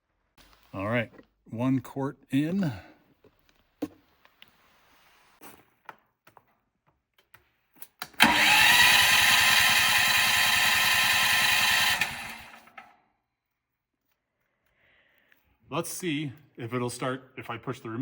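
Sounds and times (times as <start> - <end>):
loud motor-driven machine noise: 8.2 - 12.8
electric starter cranking engine: 8.2 - 12.9.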